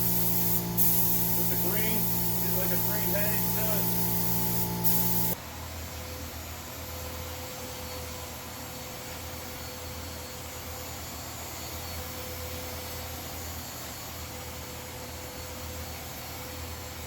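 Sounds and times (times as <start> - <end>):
small motor running: 0.0 - 5.4.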